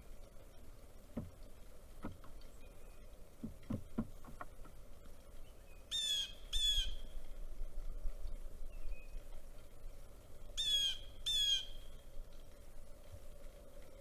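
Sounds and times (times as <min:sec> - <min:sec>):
dull knocks: 0:01.1 - 0:01.4, 0:03.4 - 0:04.8
bird giving harsh calls: 0:05.9 - 0:07.0, 0:10.6 - 0:11.9.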